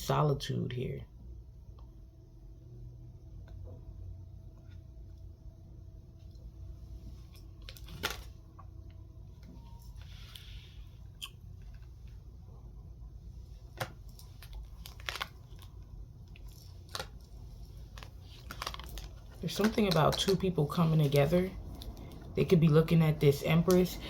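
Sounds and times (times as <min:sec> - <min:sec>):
low steady hum: 0:00.0 - 0:24.0
cards rustling: 0:13.6 - 0:22.6, 0:23.3 - 0:24.0.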